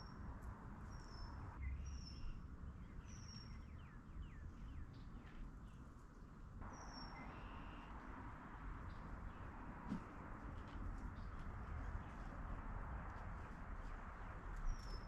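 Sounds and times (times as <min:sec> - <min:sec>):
songbirds whistling: 0:06.6 - 0:07.9.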